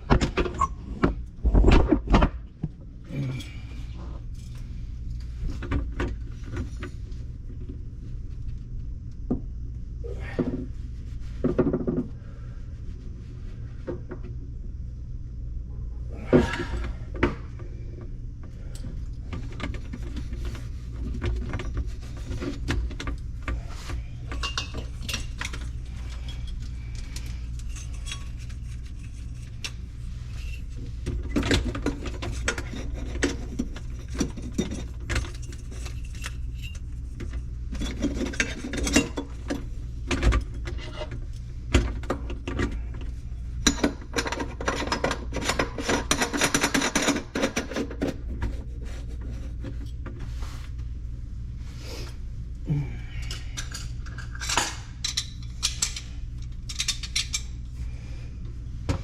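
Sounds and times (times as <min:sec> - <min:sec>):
steady low hum: 0:00.0 - 0:59.0
tools and drain parts clinking: 0:24.3 - 0:29.8, 0:30.4 - 0:41.2, 0:43.6 - 0:48.2, 0:53.1 - 0:57.6.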